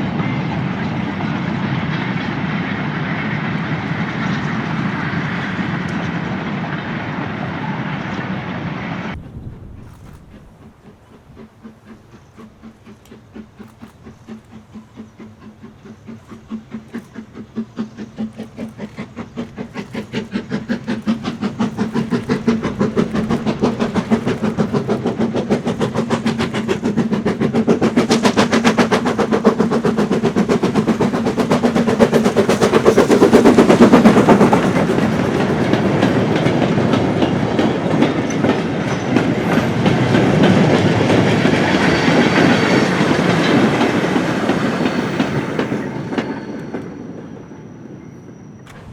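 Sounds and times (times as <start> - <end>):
steam locomotive exhaust beats: 0.0 - 48.9
wagons rattling over rail joints: 9.1 - 47.5, 48.3 - 48.9.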